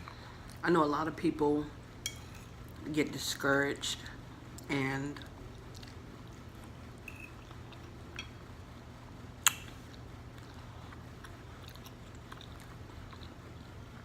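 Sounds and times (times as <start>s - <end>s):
low steady hum: 0.0s - 14.0s
person chewing food: 5.4s - 6.8s, 7.4s - 8.2s, 9.4s - 14.0s.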